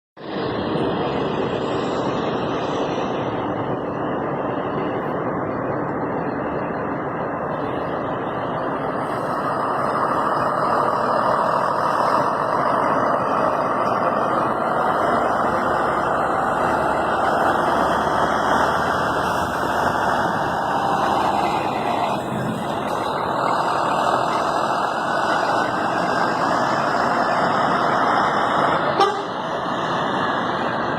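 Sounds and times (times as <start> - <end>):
coach engine running: 0.2 - 30.9
road noise: 0.2 - 30.9.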